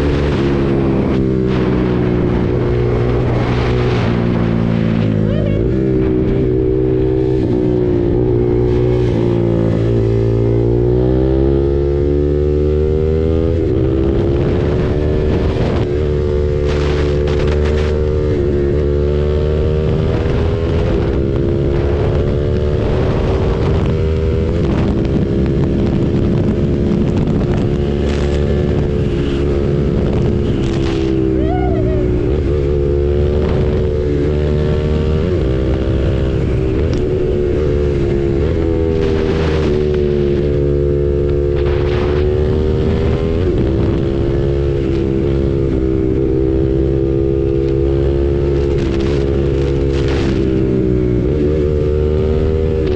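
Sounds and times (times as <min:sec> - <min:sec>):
motorcycle engine running: 0:00.0 - 0:52.9
wind rumbling on microphone: 0:00.0 - 0:52.9.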